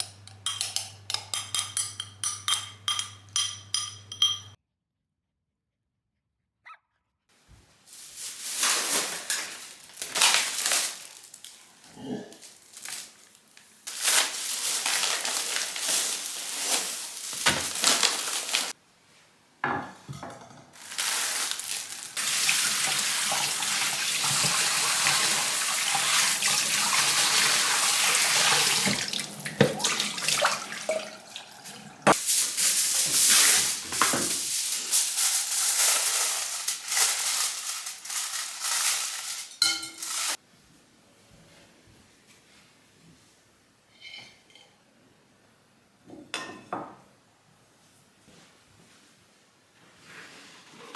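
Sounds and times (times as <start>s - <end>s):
running water: 22.2s - 32.2s.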